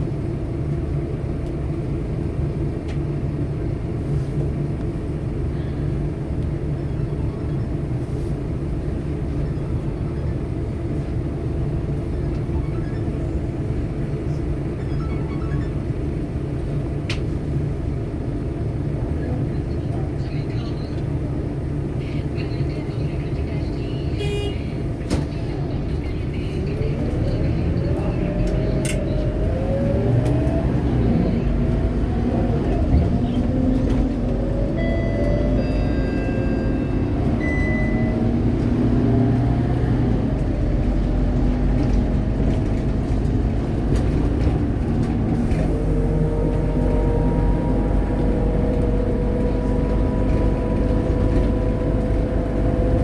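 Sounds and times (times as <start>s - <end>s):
bus diesel engine running: 0.0s - 53.0s
short electronic beeps: 34.8s - 38.3s.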